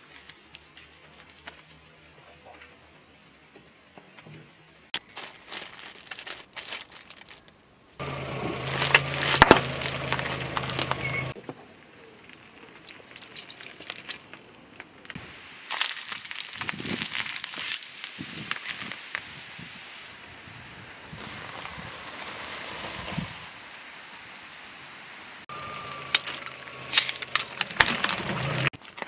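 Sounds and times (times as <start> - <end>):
tyre crushing packaged food: 5.0 - 11.0, 15.7 - 19.0, 26.0 - 29.0
wrappers crackling: 5.0 - 11.4, 12.2 - 19.3, 21.2 - 23.6, 26.0 - 29.0.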